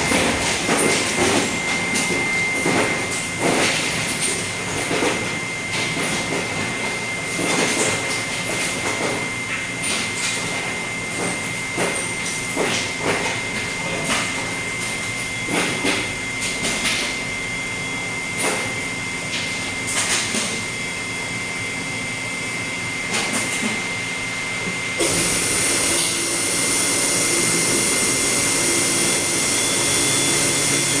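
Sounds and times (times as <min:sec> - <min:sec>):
machinery hum: 0:00.0 - 0:04.1, 0:24.2 - 0:31.0.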